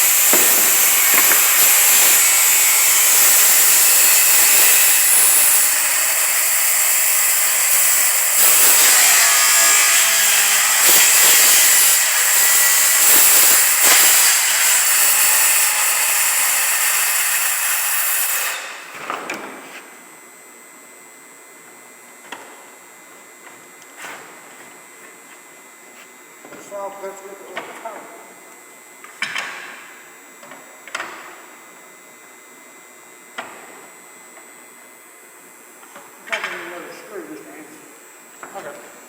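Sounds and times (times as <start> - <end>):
circular saw cutting plywood: 0.0 - 19.0.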